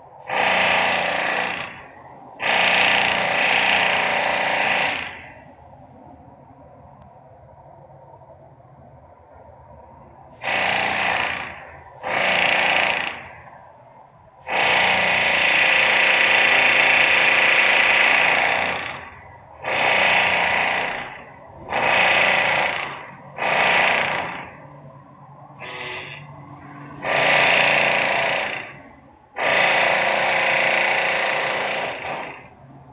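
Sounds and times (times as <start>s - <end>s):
loud industrial machinery bursts: 0.2s - 5.5s, 10.4s - 13.6s, 14.4s - 24.9s, 25.5s - 32.6s.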